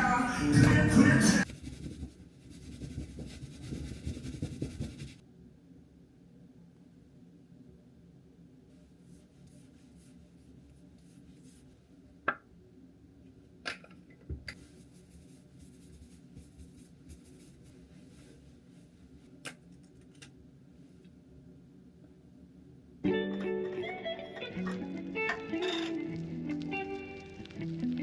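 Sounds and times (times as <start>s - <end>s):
steady low hum: 0.0s - 13.5s
faint rustling and scratching: 1.4s - 5.2s, 8.7s - 11.9s, 14.5s - 19.4s.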